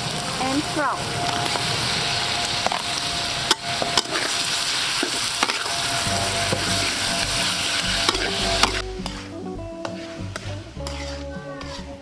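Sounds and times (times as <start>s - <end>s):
meat sizzling in a wok: 0.0s - 12.0s
spatula clicking and scraping pan: 5.0s - 5.7s, 8.0s - 9.2s, 9.8s - 11.9s.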